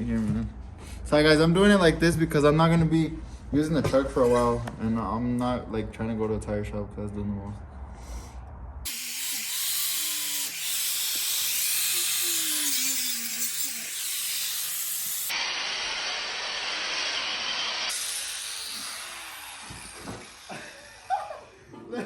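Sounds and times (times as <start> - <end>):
angle grinder cutting rubber tire: 8.9 - 21.1.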